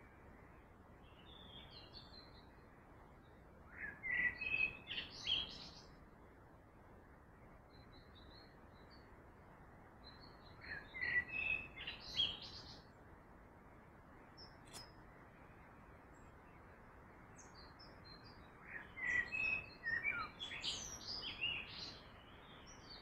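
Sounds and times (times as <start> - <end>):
songbird singing: 0.0 - 23.0
steady background hiss: 0.0 - 23.0
soft bird twittering: 3.7 - 6.0, 10.0 - 12.9, 17.3 - 23.0.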